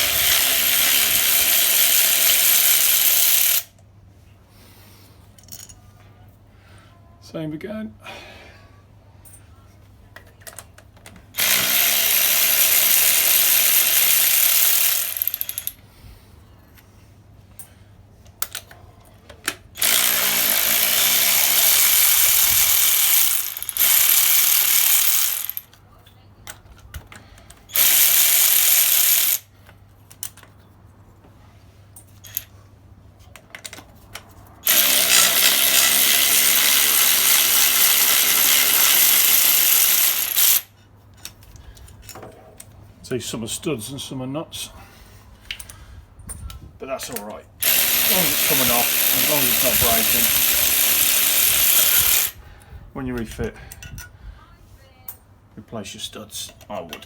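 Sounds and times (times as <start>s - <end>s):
cordless power tool spinning nuts: 0.0s - 3.7s, 11.4s - 15.8s, 19.8s - 25.7s, 27.7s - 29.5s, 34.6s - 40.7s, 47.6s - 52.4s.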